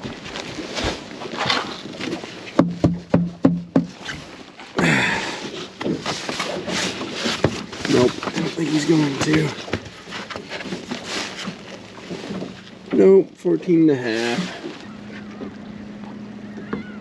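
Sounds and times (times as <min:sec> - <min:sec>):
rustling and handling noise: 0:00.0 - 0:02.6, 0:05.4 - 0:13.1
sharp knocks: 0:02.6 - 0:04.0.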